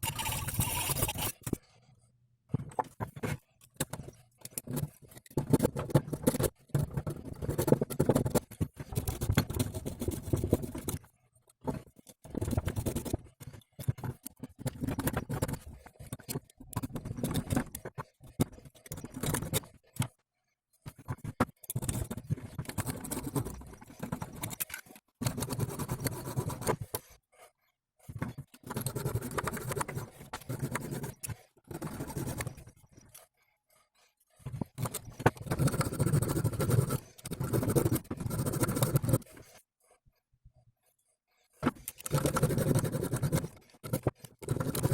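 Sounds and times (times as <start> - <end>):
hand tool scraping metal: 0.0 - 1.6.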